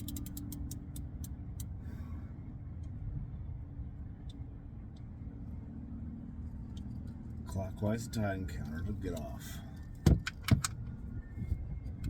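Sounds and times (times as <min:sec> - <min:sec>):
ratchet wrench clicking: 0:00.0 - 0:01.7.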